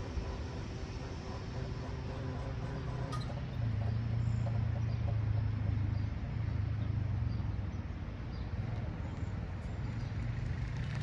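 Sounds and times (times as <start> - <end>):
low engine drone: 0.0 - 7.4.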